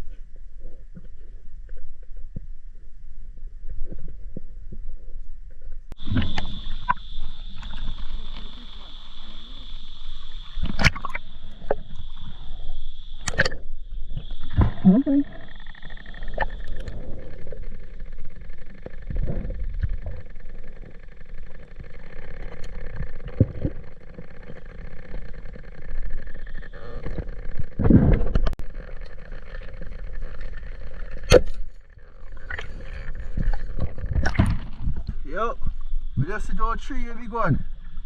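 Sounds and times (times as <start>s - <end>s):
faint steady whine: 0.0s - 38.0s
water splashing and sloshing: 5.6s - 36.2s.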